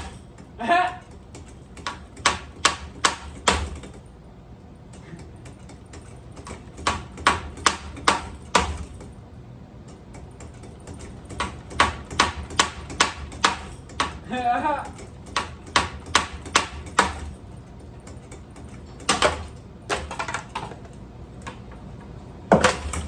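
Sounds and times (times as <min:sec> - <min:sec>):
ceiling fan being smashed: 0:11.0 - 0:17.4, 0:18.7 - 0:21.7, 0:22.5 - 0:23.0.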